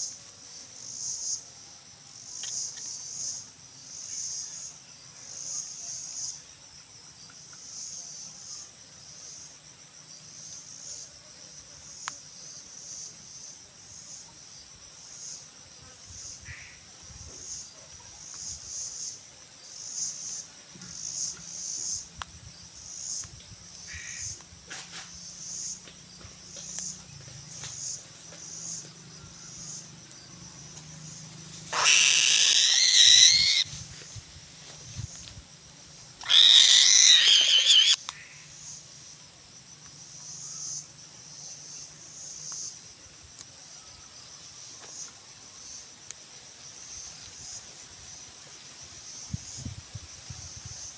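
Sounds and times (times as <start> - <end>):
crickets chirping: 0.0 - 50.9
loud animal call: 31.7 - 33.7, 36.2 - 38.0.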